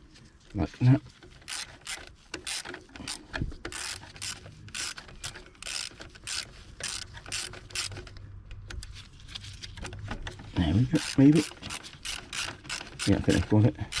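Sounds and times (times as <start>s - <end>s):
ratchet wrench clicking: 1.4s - 8.1s, 11.0s - 14.0s.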